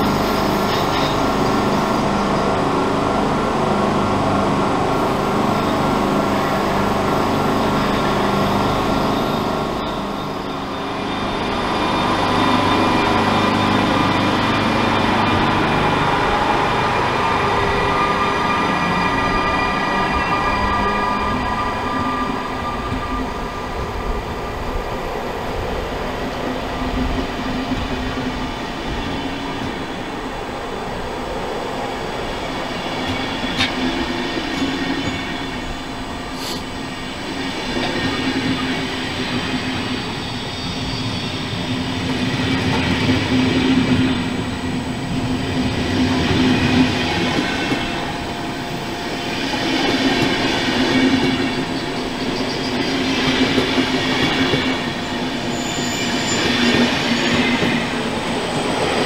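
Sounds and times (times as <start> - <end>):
train wheels rumbling: 0.0 - 59.0
high wheel squeal: 37.8 - 43.0, 46.6 - 59.0.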